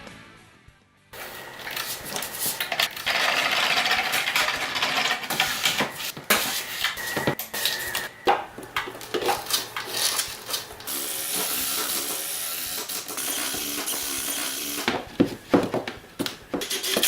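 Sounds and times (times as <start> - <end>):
background music: 0.0 - 1.7.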